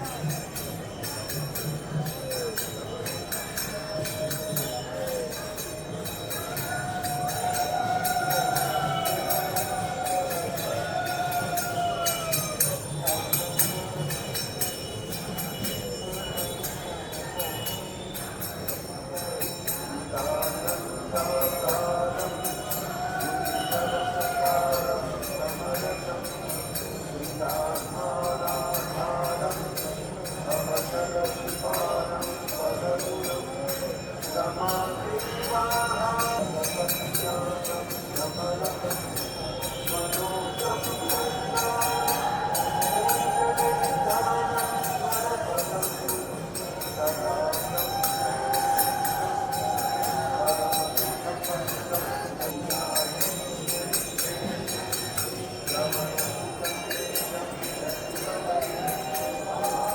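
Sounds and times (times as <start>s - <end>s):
crowd of voices: 0.0s - 59.9s
temple bells ringing: 0.0s - 59.9s
voices chanting: 4.6s - 14.0s, 38.4s - 53.3s.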